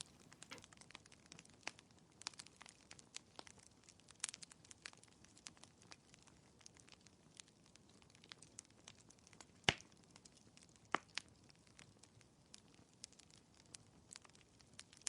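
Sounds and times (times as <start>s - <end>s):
wood fire crackling: 0.0s - 0.8s, 2.2s - 15.0s.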